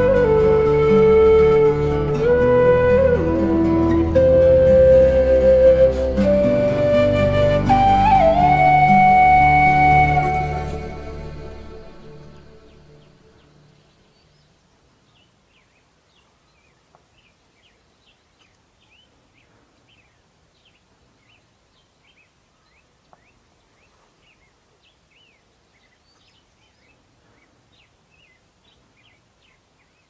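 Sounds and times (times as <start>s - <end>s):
quiet hiss: 0.0s - 30.0s
small birds chirping: 12.3s - 30.0s.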